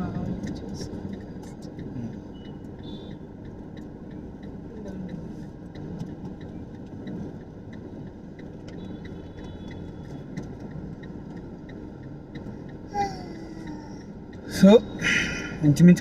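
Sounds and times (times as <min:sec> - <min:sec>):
car engine and road noise: 0:00.0 - 0:16.0
light ticking: 0:00.0 - 0:16.0.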